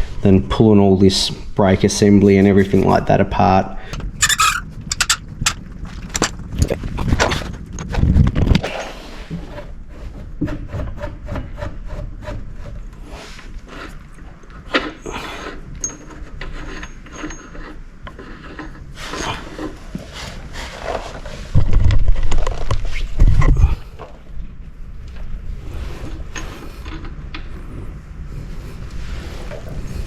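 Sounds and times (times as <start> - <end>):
tools rubbing and scraping: 4.1 - 6.4, 8.6 - 21.6.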